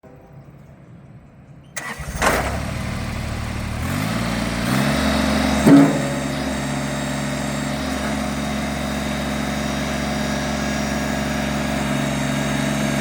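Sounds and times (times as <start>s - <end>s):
diesel tractor engine starting: 1.7s - 13.0s
sharp knock: 5.7s - 6.4s.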